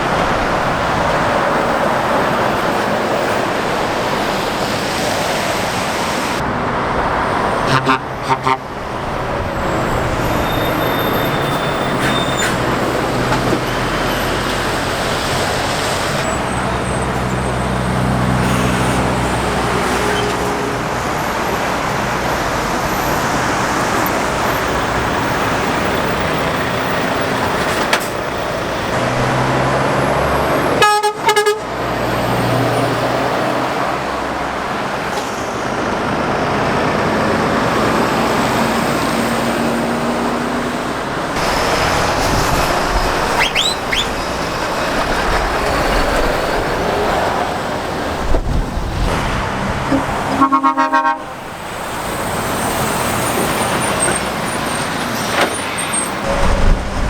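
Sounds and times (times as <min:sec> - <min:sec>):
trucks and cars passing: 0:00.0 - 0:57.0
truck horn toot: 0:07.6 - 0:08.9, 0:30.6 - 0:32.0, 0:43.4 - 0:44.4, 0:49.8 - 0:51.5.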